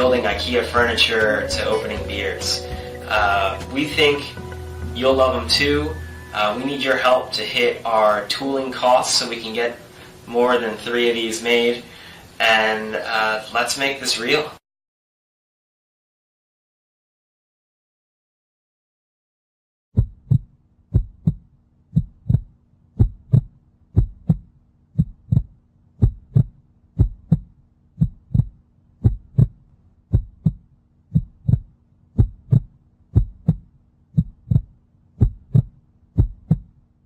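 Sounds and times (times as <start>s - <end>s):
low steady hum: 0.0s - 14.6s
deep double thump pulse: 20.0s - 36.7s.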